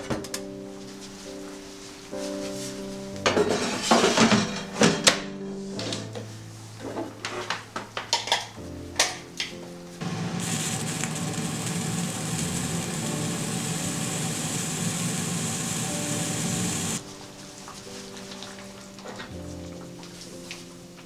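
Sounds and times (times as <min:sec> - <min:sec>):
electric blender running: 0:10.0 - 0:17.0.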